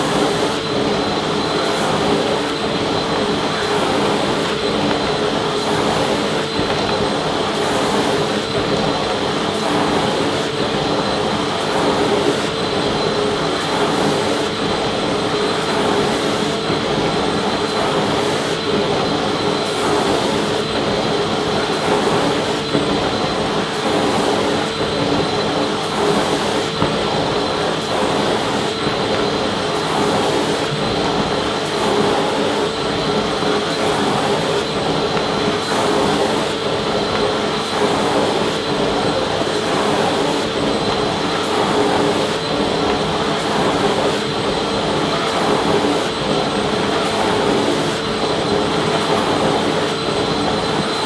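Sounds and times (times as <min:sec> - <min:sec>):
vacuum cleaner running: 0:00.0 - 0:51.0.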